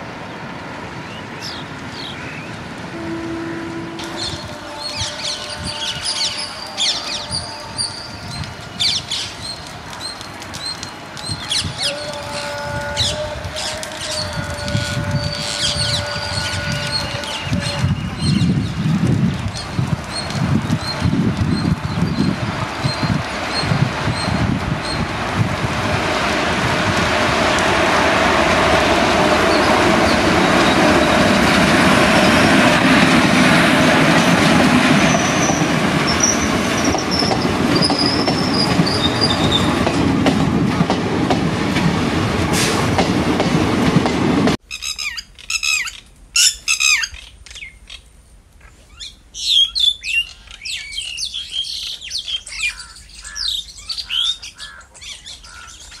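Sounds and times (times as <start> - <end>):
train rumbling past on rails: 0.0 - 44.6
birds chirping: 48.9 - 56.0.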